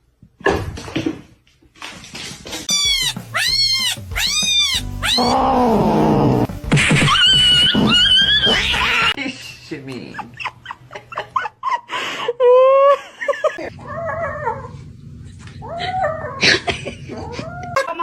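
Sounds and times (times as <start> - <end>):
cat meowing: 2.7 - 6.5.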